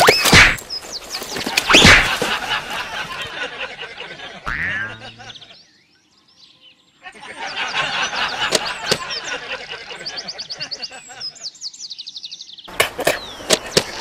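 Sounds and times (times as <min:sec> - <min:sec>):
small birds chirping: 0:00.0 - 0:02.2, 0:04.5 - 0:14.0
bird trill: 0:04.5 - 0:13.5.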